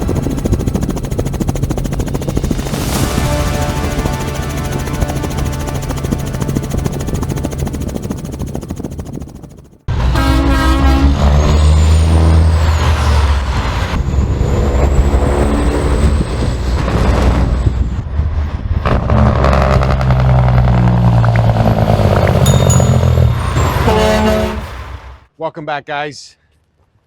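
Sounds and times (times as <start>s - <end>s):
air horn blast: 2.8s - 8.0s, 9.9s - 11.5s, 22.3s - 25.3s
truck diesel engines: 9.9s - 25.3s.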